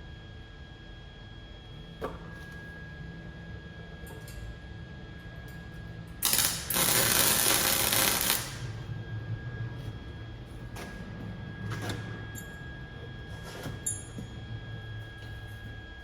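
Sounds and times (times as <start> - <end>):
steady low hum: 2.7 - 16.0
welding arc crackling: 6.2 - 8.8.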